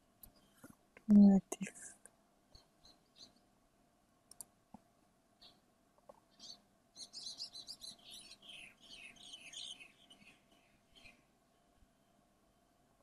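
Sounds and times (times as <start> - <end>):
soft mouse clicks: 0.2 - 1.1, 4.3 - 4.9
bird chirping: 2.5 - 3.5, 5.4 - 11.3.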